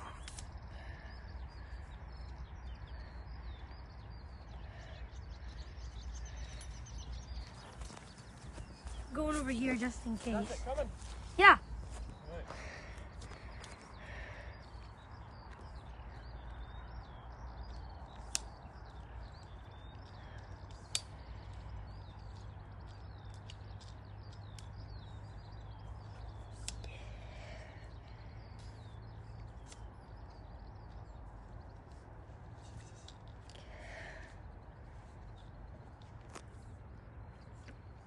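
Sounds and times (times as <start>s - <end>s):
small birds twittering: 0.0s - 38.0s
sharp clicks: 17.7s - 25.1s.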